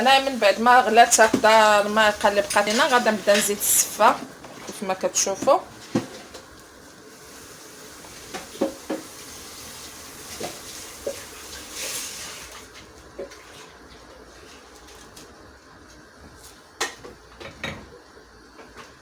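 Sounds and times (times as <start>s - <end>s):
boiling pot hissing: 0.0s - 19.0s.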